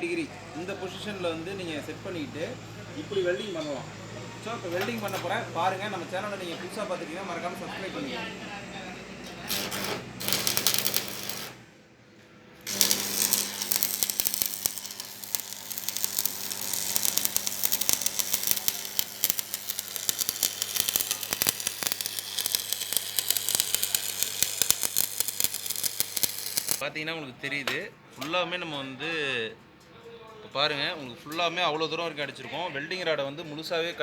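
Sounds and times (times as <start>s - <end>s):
welding arc crackling: 9.4s - 11.6s, 12.6s - 26.8s.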